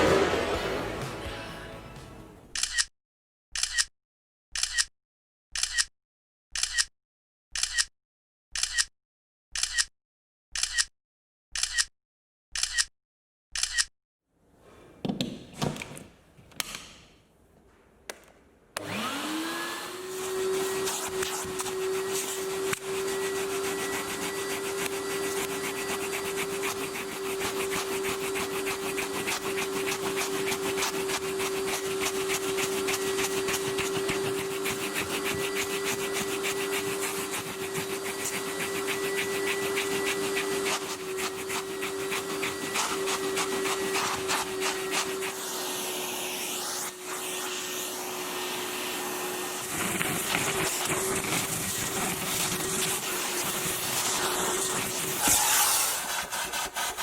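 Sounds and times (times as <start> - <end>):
vacuum cleaner motor humming: 18.8 - 56.9
scratchy rubbing of brush: 20.1 - 48.0, 49.5 - 57.0.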